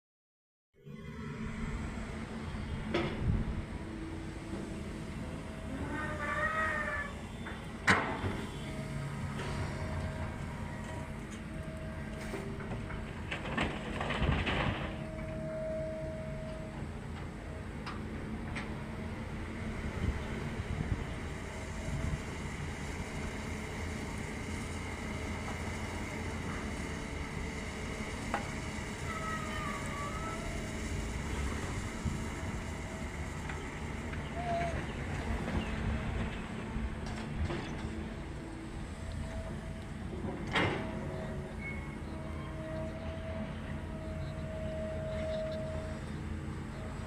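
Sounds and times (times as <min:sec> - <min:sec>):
excavator rumbling: 0:00.8 - 0:47.0
faint high squeaks: 0:28.2 - 0:31.8.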